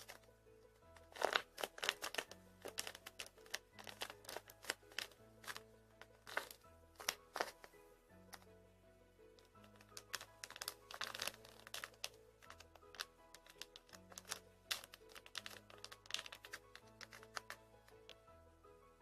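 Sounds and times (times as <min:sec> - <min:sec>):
squishy toys crinkling: 0:00.0 - 0:00.2, 0:01.0 - 0:08.4, 0:09.4 - 0:18.2
soft background music: 0:00.0 - 0:19.0.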